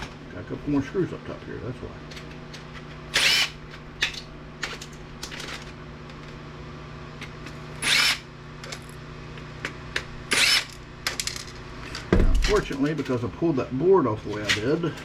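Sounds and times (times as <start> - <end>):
power screwdriver burst: 3.1 - 3.6, 7.8 - 8.3, 10.3 - 10.8.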